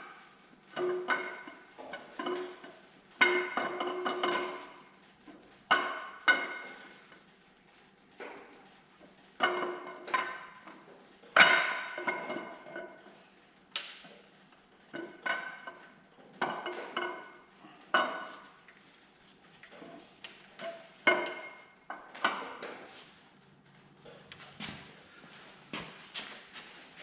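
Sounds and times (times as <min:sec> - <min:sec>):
metal parts clinking: 0:13.7 - 0:14.3.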